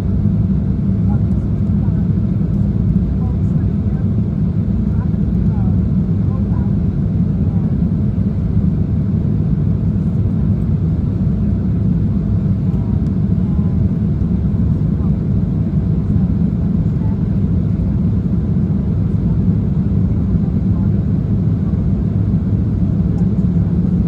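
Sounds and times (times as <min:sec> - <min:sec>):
jet engines roaring in cabin: 0:00.0 - 0:24.0
faint voices: 0:12.1 - 0:24.0.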